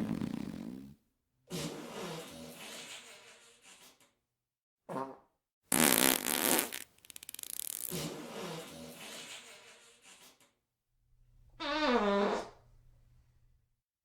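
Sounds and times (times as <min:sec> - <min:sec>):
fart sound effects: 0:00.0 - 0:01.0, 0:04.9 - 0:08.6, 0:11.6 - 0:12.6.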